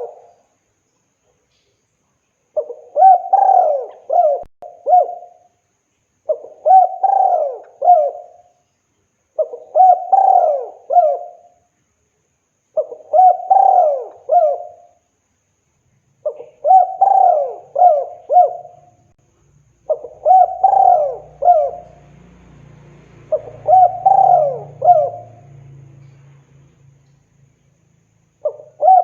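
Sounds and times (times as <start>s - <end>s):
dove cooing: 0.0s - 0.3s, 2.6s - 5.4s, 6.3s - 8.5s, 9.4s - 11.5s, 12.8s - 15.0s, 16.2s - 19.0s, 19.9s - 22.2s, 23.2s - 26.2s, 28.4s - 29.0s.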